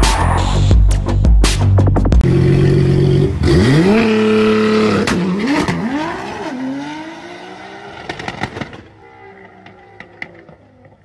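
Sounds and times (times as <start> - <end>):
car engine revving through upshifts: 2.2 - 10.6.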